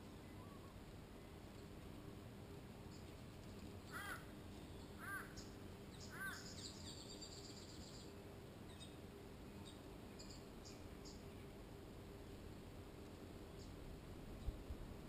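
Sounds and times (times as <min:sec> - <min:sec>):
bird cawing: 0:03.9 - 0:04.4, 0:05.0 - 0:06.6.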